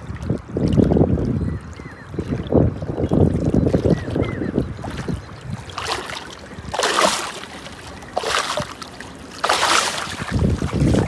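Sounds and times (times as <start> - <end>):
wind rumbling on microphone: 0.0 - 8.8, 9.5 - 11.0
water splashing: 3.1 - 11.0.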